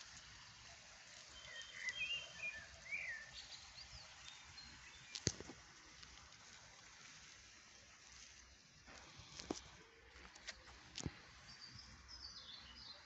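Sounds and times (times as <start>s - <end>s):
small birds chirping: 0.0s - 6.4s, 9.2s - 13.0s
outdoor air hiss: 0.0s - 13.0s.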